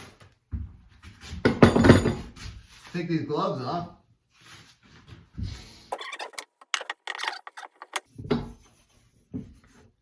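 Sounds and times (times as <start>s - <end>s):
sharp clicks and crackles: 6.0s - 8.1s.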